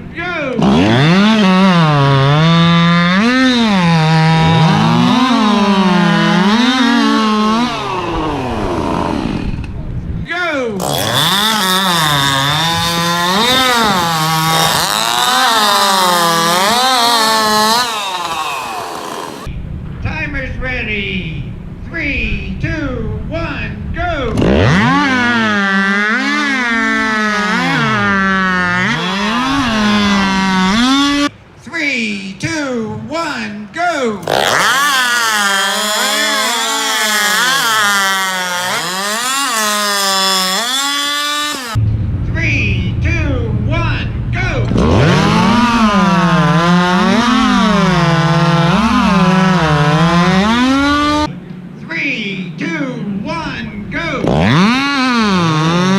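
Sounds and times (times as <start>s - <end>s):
chainsaw cutting through log: 0.6s - 9.7s, 10.8s - 19.5s, 24.4s - 31.3s, 34.2s - 41.8s, 44.7s - 51.3s, 54.2s - 55.9s.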